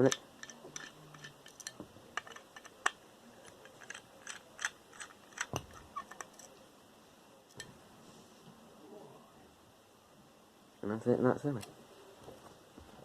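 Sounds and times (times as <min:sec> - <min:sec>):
small metal clicks and taps: 0:00.0 - 0:06.5.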